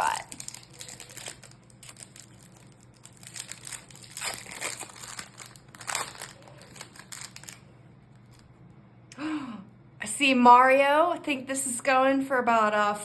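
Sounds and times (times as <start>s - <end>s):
crinkly wrapper rustling: 0.0s - 8.5s.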